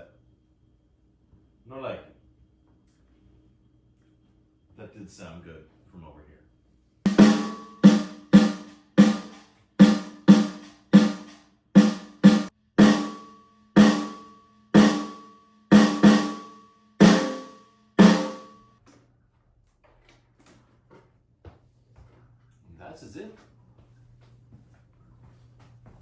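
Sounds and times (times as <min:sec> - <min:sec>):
snare drum hits: 0:07.1 - 0:18.6.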